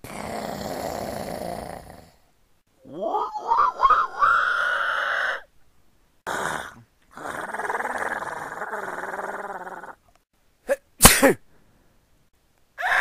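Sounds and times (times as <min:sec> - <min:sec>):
man making animal noises: 0:02.8 - 0:05.4, 0:06.3 - 0:10.0.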